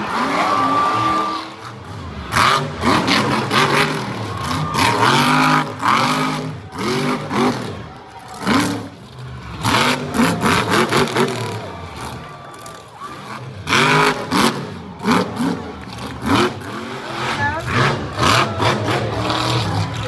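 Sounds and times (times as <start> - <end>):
truck engine revving hard: 0.0 - 20.0.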